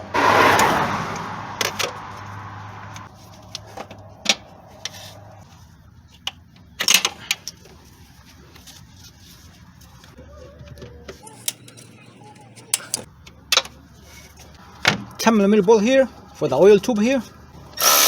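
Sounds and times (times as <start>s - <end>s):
tools clicking and clattering: 11.2s - 13.1s.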